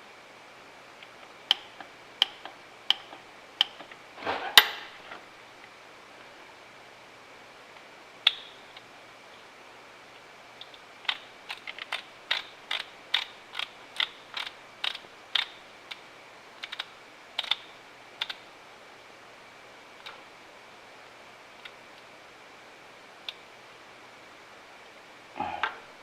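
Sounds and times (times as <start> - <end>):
ratchet wrench clicking: 11.5 - 15.5.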